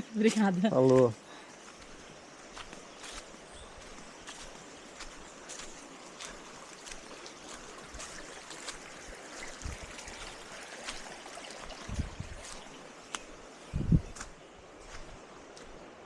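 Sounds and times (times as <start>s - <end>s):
stream rushing: 1.8s - 13.6s.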